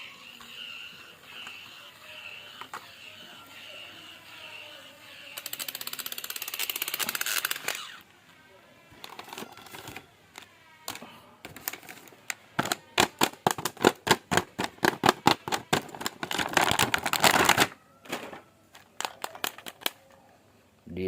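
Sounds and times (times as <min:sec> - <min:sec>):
plastic toy figure clicking: 0:05.3 - 0:07.9, 0:18.8 - 0:20.0.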